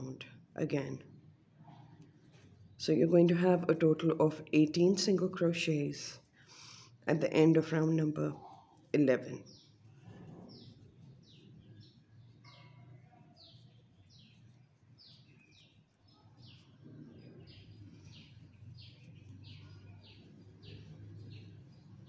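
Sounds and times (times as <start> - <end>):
small bird chirping: 8.0 - 22.0.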